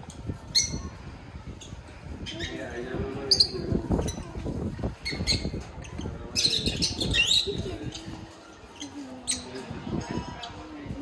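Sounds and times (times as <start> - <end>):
low background murmur: 0.0 - 11.0
small birds chirping and squawking: 0.0 - 11.0.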